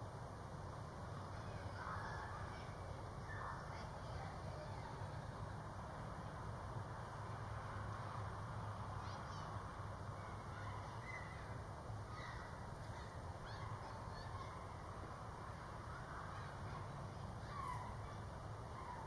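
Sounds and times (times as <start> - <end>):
distant bird calls: 9.1 - 19.0.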